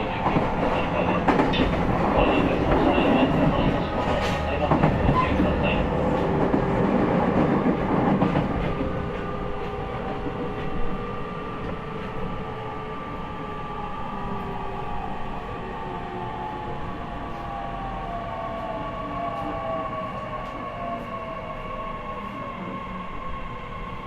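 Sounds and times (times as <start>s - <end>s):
rail joint clicks: 0.0s - 12.4s
train wheels rumbling on rails: 0.0s - 24.0s.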